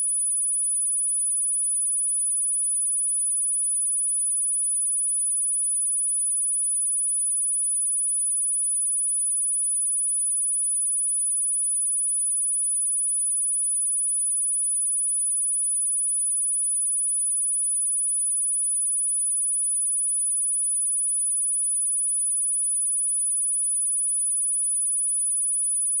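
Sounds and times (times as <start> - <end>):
high-pitched sine test tone: 6.3 - 26.0.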